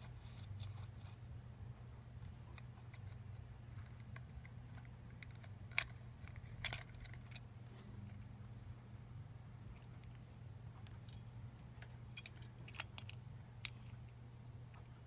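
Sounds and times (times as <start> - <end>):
steady low hum: 0.0 - 15.0
clicks of small hard parts: 3.8 - 7.4.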